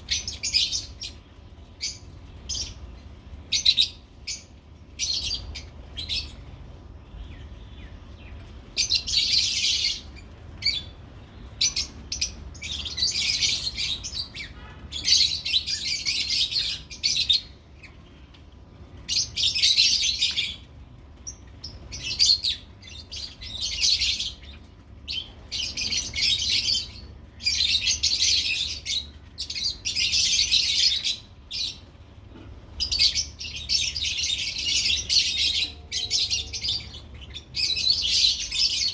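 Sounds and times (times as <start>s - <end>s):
lovebirds chirping: 0.0s - 18.4s, 32.7s - 38.9s.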